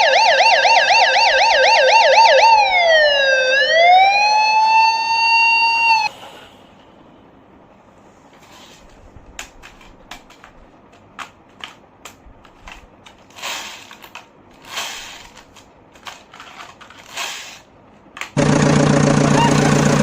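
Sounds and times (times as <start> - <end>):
plastic toy vehicles clicking and knocking: 8.9 - 18.4
loud steady engine: 18.4 - 20.0.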